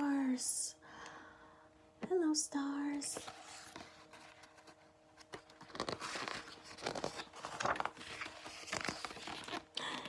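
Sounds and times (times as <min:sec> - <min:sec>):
paper pages rustling: 0:03.1 - 0:10.0.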